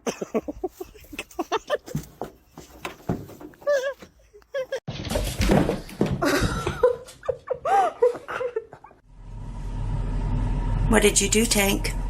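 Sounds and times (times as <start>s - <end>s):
laughter: 0.0s - 2.0s, 4.3s - 4.8s, 6.2s - 9.0s
dog whining and yelping: 3.6s - 4.8s.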